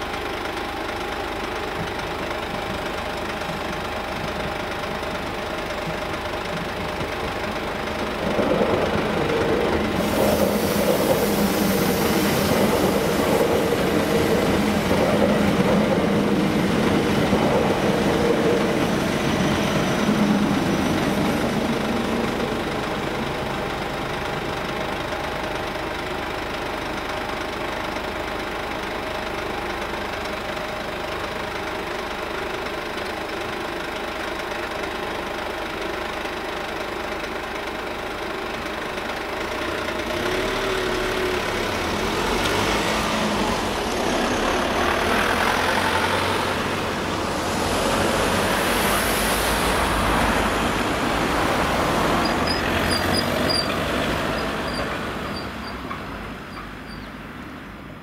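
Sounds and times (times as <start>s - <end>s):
engine idling: 0.0s - 47.6s
train rumble and wheels on rails: 0.0s - 58.0s
hiss: 9.7s - 15.6s, 45.2s - 52.2s.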